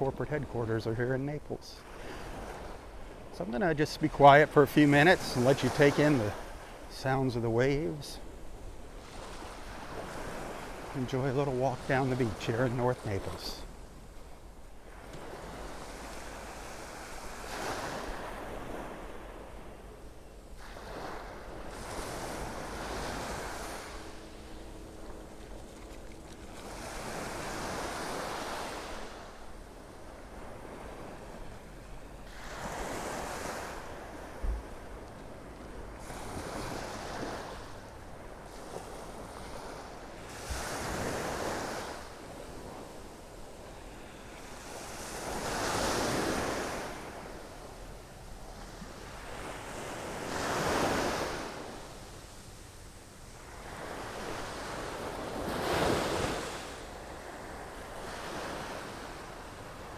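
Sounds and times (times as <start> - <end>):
gentle waves breaking: 0.0 - 59.9
wind rumble on microphone: 32.9 - 43.0.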